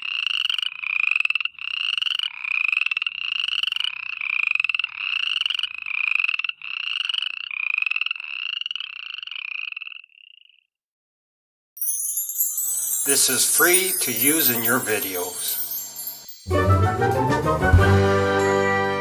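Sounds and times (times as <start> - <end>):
frogs calling in pulsed trills: 0.0 - 10.8.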